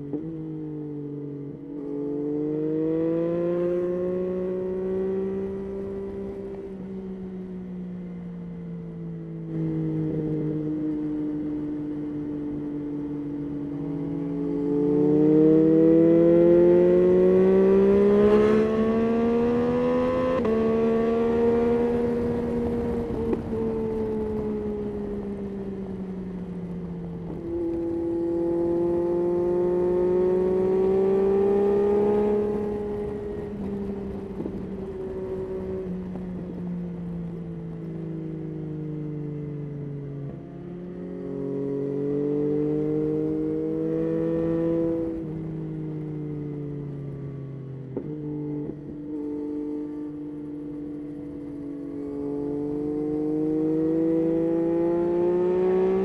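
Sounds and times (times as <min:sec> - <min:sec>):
motorcycle engine revving: 0:13.7 - 0:37.4, 0:39.8 - 0:46.0, 0:47.9 - 0:56.0.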